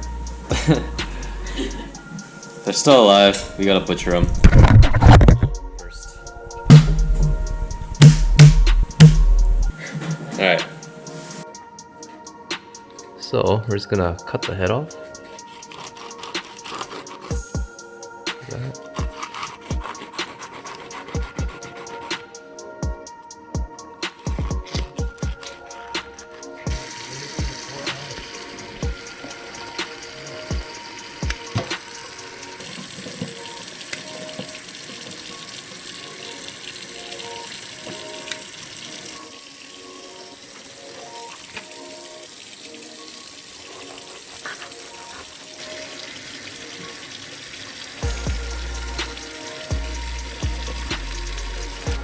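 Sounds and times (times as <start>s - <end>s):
tap water running into sink: 24.1s - 52.0s.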